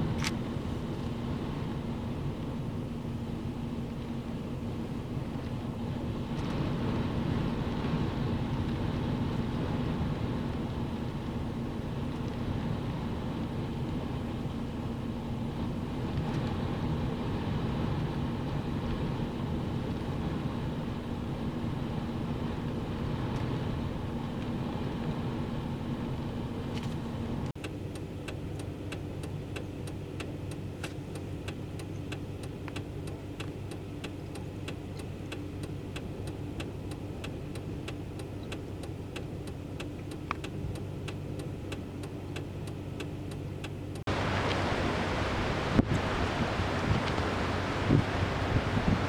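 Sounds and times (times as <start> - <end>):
rush of wind: 0.0 - 27.6, 44.1 - 49.0
car engine hum: 0.0 - 49.0
regular ticking: 27.5 - 45.2.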